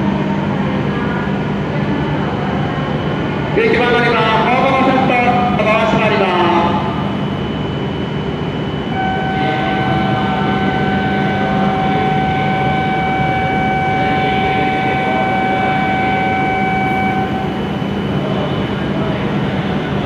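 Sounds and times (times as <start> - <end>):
train low hum: 0.0 - 20.0
high tone with overtones: 8.4 - 19.2.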